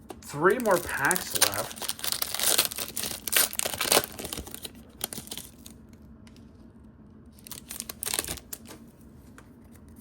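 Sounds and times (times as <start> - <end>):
foil wrapper tearing and crinkling: 0.3 - 5.8, 7.4 - 8.7.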